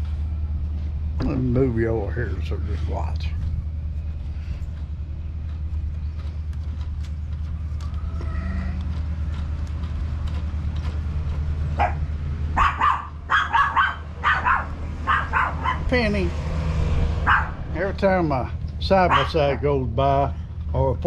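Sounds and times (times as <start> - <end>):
steady low rumble: 0.0 - 21.0
dog barking: 11.8 - 12.0, 12.6 - 15.9, 17.2 - 17.6, 19.0 - 19.6.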